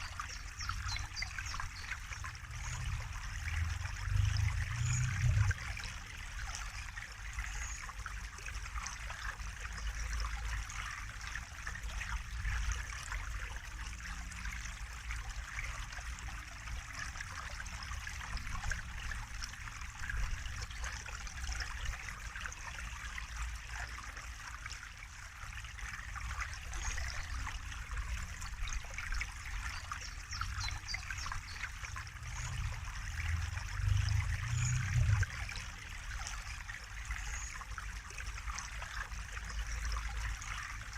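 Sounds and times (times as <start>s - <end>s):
water trickling: 0.0s - 40.9s
low rumble: 32.0s - 35.4s.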